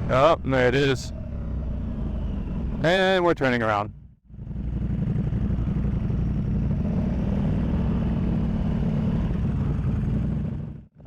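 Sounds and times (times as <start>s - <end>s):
motorcycle engine running: 3.9s - 11.0s.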